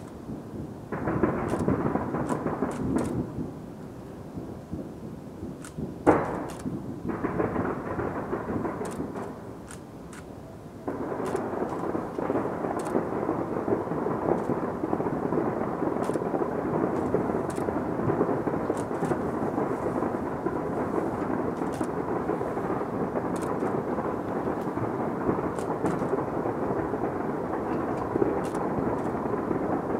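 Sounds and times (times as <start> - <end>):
sharp crackles: 0.0 - 4.0, 5.5 - 29.9
distant fireworks rumble: 0.0 - 29.9
firework bang: 5.8 - 9.5.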